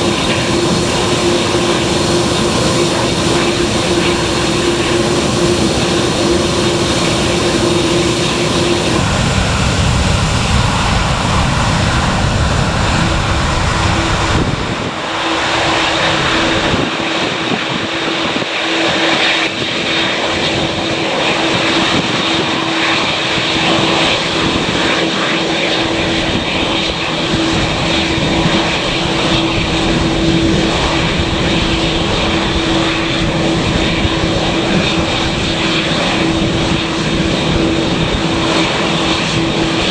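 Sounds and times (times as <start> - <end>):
steady droning tone: 0.0 - 17.8
aircraft engines at takeoff: 0.0 - 39.9.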